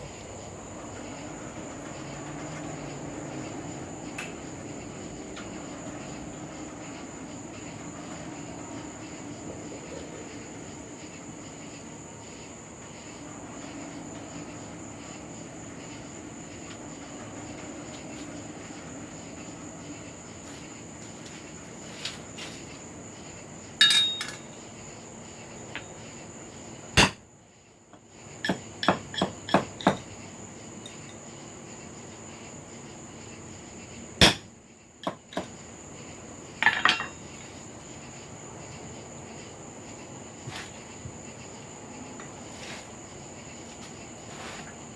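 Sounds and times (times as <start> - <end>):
hammer striking an anvil: 23.8 - 24.4, 27.0 - 27.2, 34.2 - 34.5.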